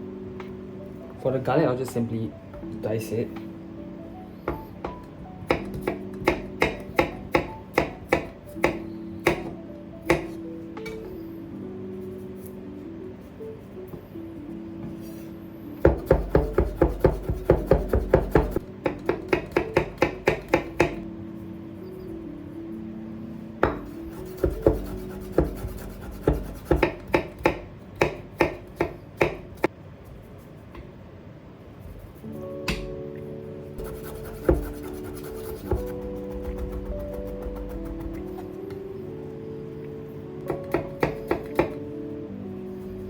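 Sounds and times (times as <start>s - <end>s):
background music: 0.0s - 29.7s, 31.8s - 43.0s
knife chopping on cutting board: 15.9s - 21.0s, 23.6s - 29.4s, 33.8s - 38.4s.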